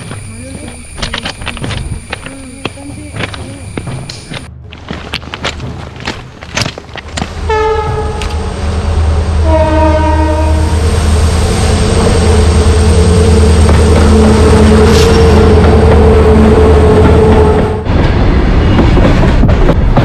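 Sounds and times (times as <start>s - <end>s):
train rumbling on track: 0.0s - 20.0s
train horn: 7.5s - 8.4s, 9.4s - 10.9s.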